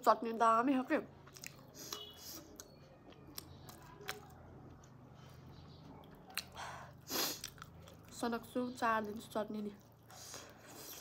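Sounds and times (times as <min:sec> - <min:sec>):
chewing and wet mouth clicks: 0:01.2 - 0:06.6, 0:07.4 - 0:08.2.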